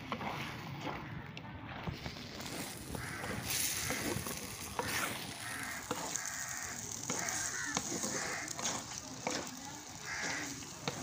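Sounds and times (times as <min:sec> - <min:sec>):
meat sizzling in a pot: 0:02.2 - 0:11.0.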